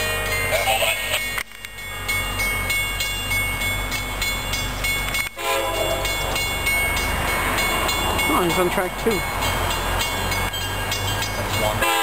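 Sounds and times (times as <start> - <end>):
diesel locomotive engine rumble: 0.0 - 12.0
train horn tones: 5.4 - 6.2, 11.8 - 12.0.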